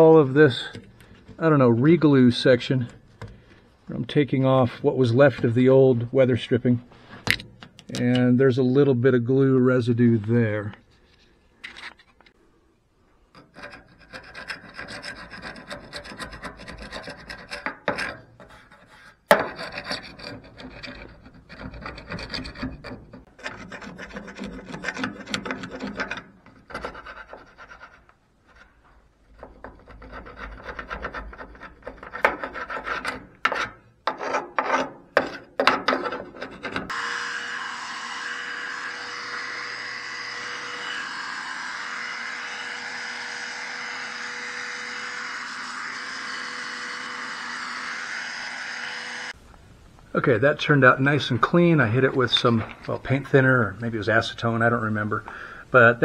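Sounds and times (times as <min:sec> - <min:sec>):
scrubbing glue off metal: 0:13.4 - 0:36.9
steady hum: 0:36.9 - 0:55.7.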